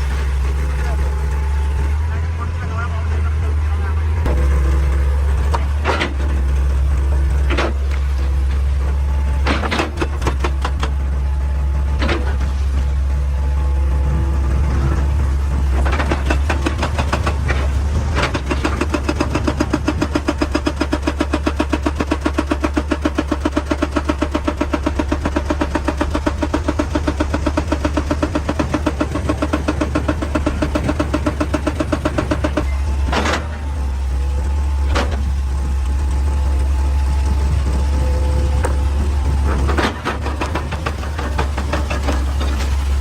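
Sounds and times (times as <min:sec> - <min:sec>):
excavator engine running: 0:00.0 - 0:43.0
rapid even pounding: 0:15.7 - 0:33.9.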